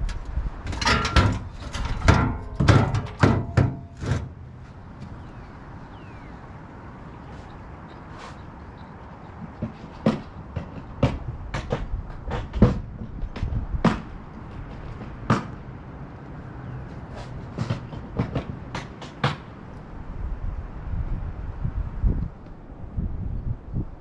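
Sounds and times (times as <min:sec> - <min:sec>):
equipment knocks and clunks: 0:00.6 - 0:04.4, 0:09.4 - 0:15.6.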